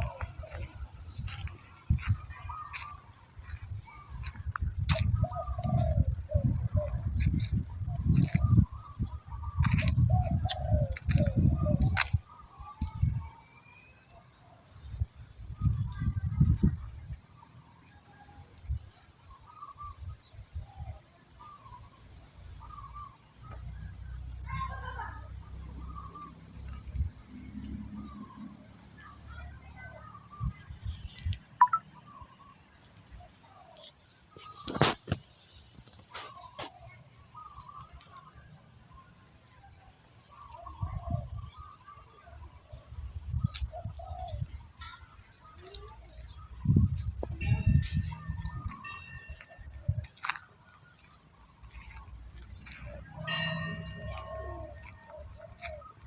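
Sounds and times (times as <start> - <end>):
small birds chirping: 0.0 - 56.0
high-pitched bird trills: 31.5 - 32.1, 43.0 - 56.0.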